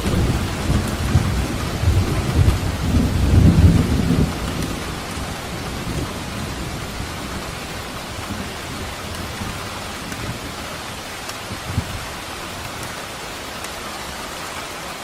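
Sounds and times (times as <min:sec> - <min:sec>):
low rumble of thunder: 0:00.0 - 0:10.7
rain hissing on surfaces: 0:00.0 - 0:15.0.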